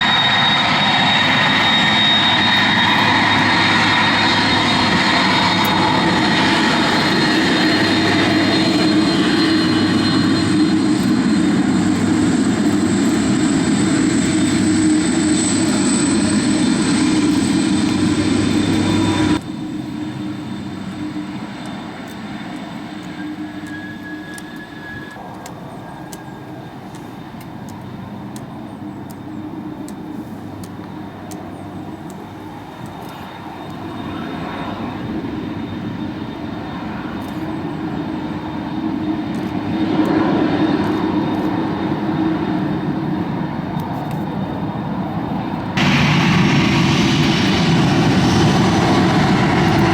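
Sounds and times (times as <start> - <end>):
jet engines whining and rumbling: 0.0 - 49.9.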